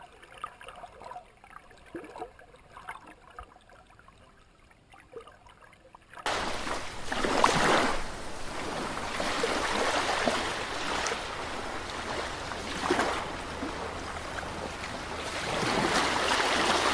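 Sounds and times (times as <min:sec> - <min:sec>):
water trickling: 0:00.0 - 0:16.9
water rushing and splashing: 0:06.2 - 0:16.9.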